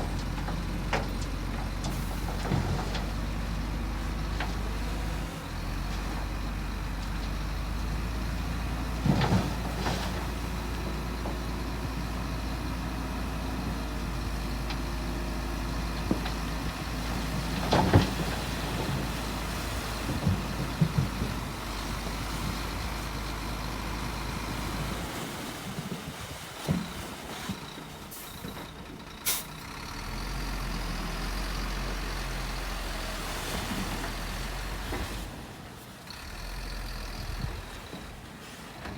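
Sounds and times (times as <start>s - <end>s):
diesel machinery running: 0.0s - 38.9s.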